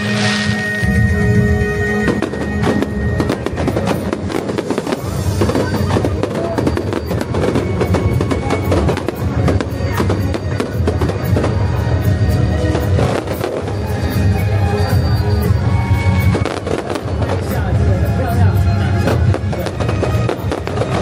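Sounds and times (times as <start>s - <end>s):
fireworks crackling and popping: 0.0s - 21.0s.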